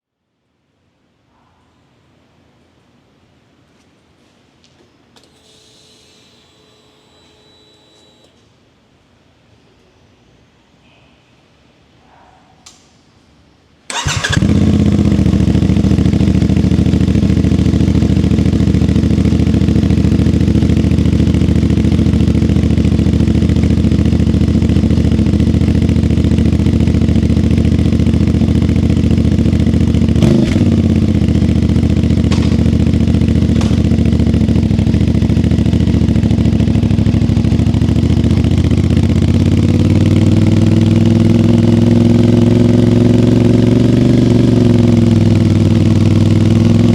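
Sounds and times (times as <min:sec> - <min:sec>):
brief click: 0:12.6 - 0:13.0
motorcycle engine starting and idling: 0:13.9 - 0:46.9.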